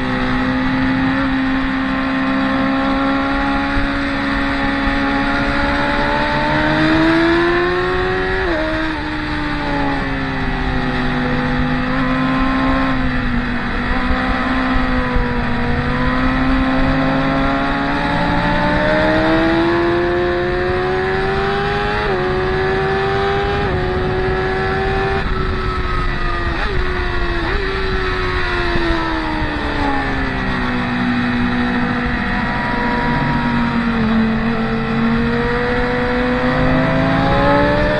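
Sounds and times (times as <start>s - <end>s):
racing motorcycle engines: 0.0s - 37.9s.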